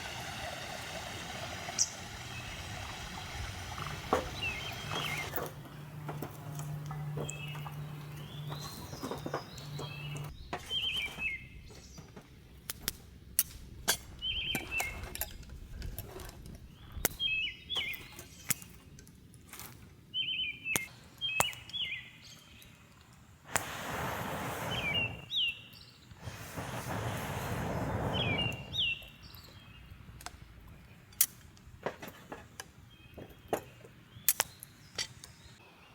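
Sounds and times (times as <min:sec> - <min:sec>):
small birds chirping: 0:01.3 - 0:12.1, 0:14.1 - 0:15.1, 0:16.6 - 0:18.8, 0:20.1 - 0:31.2
hissing noise: 0:23.5 - 0:25.3, 0:26.2 - 0:29.0
sharp clicks and snaps: 0:34.3 - 0:35.3.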